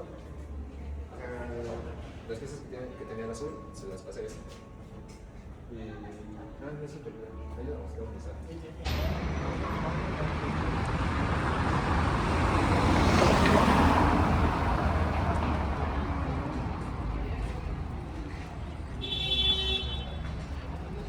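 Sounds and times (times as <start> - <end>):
vehicle passing: 8.9 - 21.0.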